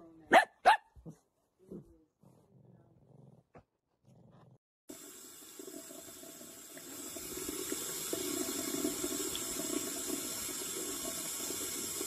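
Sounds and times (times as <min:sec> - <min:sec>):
tap running water: 0:04.9 - 0:12.0.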